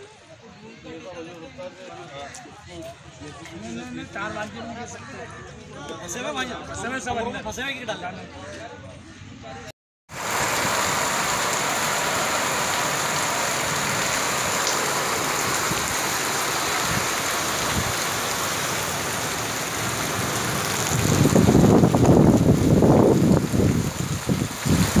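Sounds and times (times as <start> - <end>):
heavy rain on wet pavement: 10.1 - 25.0.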